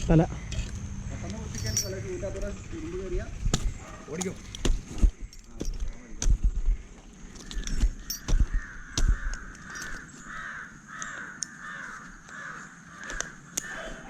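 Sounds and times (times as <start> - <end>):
crow cawing: 0.3 - 1.5, 7.4 - 14.0.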